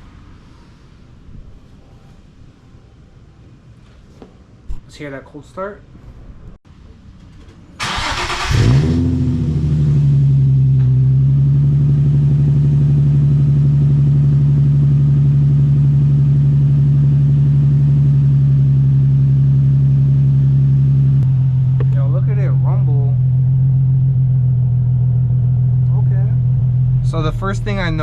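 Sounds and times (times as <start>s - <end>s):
car engine starting and idling: 7.8s - 28.0s.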